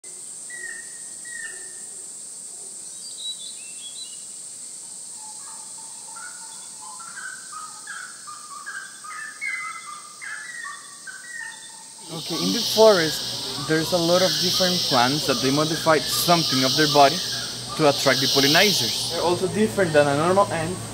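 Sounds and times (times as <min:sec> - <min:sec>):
birds whistling: 0:05.2 - 0:20.9
high-pitched drone: 0:12.0 - 0:20.9.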